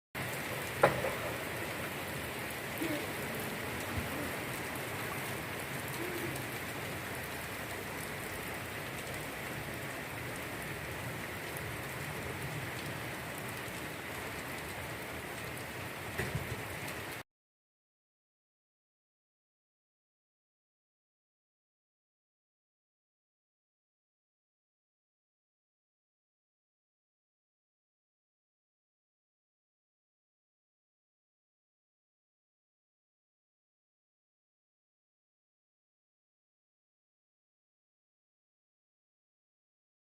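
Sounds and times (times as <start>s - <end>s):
steady rain falling: 0.2s - 17.2s
knocks: 0.8s - 1.4s.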